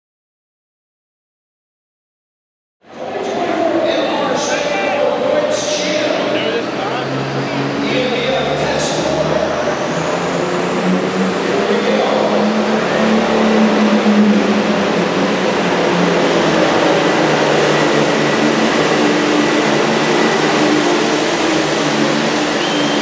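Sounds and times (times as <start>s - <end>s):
tractor diesel engine at full throttle: 5.6s - 23.0s
turbo whistle: 22.6s - 23.0s.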